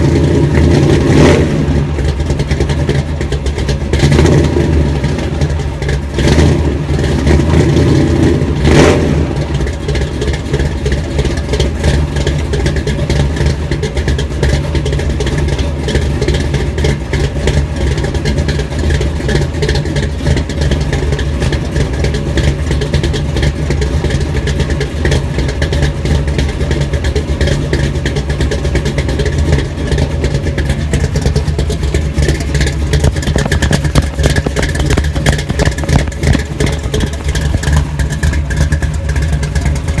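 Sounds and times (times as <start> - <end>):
engine idling and revving: 0.0 - 40.0.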